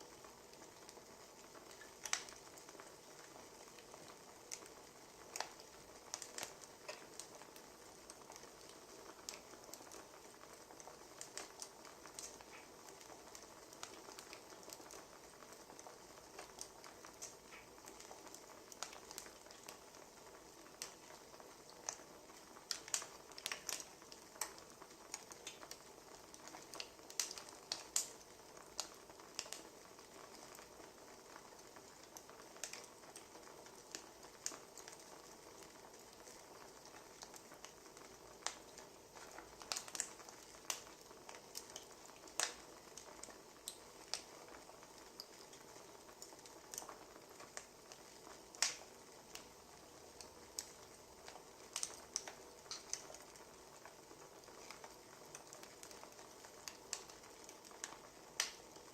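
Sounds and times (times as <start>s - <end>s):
soft steady hiss: 0.0s - 58.9s
wood fire crackling: 0.0s - 58.9s.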